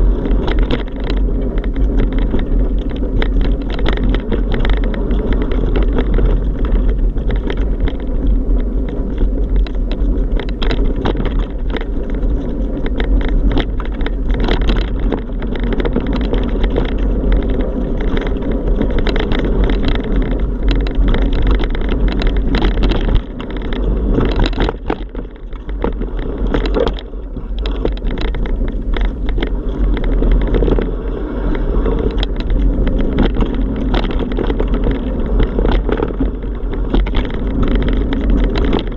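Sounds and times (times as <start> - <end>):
road rumble: 0.0 - 38.9
wind buffeting microphone: 0.0 - 38.9
rattling knocks from bumps: 31.9 - 38.9.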